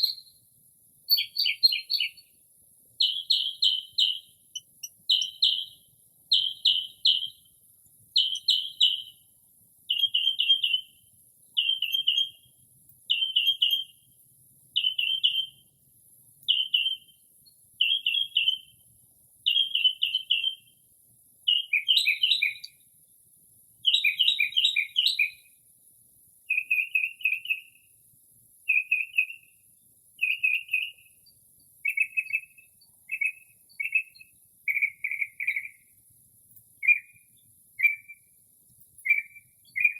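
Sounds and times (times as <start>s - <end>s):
mockingbird singing: 0.0s - 0.4s, 1.1s - 2.4s, 3.0s - 7.5s, 8.2s - 9.2s, 9.9s - 12.5s, 13.1s - 14.0s, 14.8s - 15.6s, 16.5s - 17.1s, 17.8s - 18.7s, 19.4s - 20.7s, 21.5s - 22.8s, 23.8s - 25.5s, 26.5s - 27.8s, 28.7s - 29.6s, 30.2s - 31.2s, 31.8s - 35.9s, 36.8s - 38.3s, 39.0s - 39.9s.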